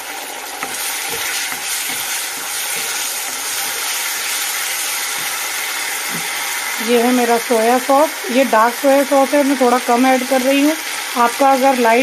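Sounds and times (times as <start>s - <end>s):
vegetables sizzling in a wok: 0.0s - 12.0s
wooden spatula scraping and knocking: 0.6s - 6.4s.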